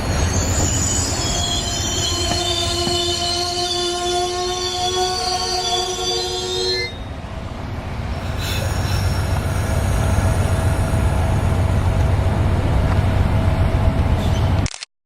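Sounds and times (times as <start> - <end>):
train rumbling past: 0.0 - 14.6
wheel squeal on rails: 0.1 - 7.1.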